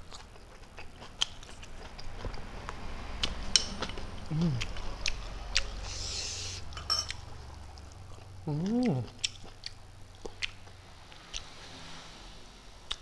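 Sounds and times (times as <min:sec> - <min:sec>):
man chewing food: 0:00.0 - 0:11.7
man humming: 0:04.2 - 0:04.7, 0:08.4 - 0:09.2
wet clicks and lip smacks: 0:09.2 - 0:10.6.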